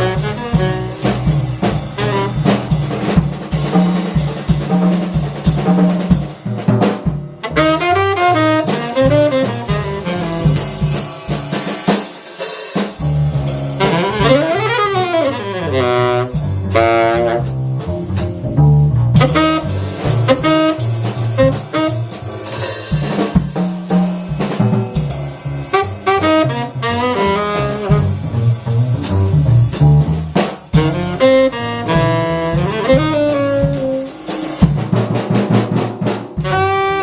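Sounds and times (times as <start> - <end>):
tenor saxophone improvising: 0.0 - 2.8, 7.4 - 11.7, 13.3 - 34.6, 36.4 - 37.0
double bass: 0.0 - 11.8, 12.9 - 37.0
drum kit: 0.0 - 37.0.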